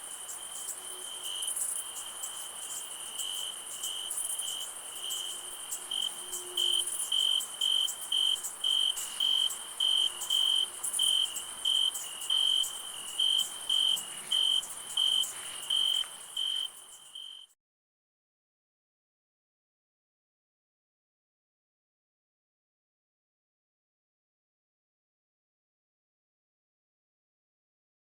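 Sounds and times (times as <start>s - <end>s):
cricket chirping: 0.0s - 17.6s
high-pitched insect trill: 0.0s - 17.6s.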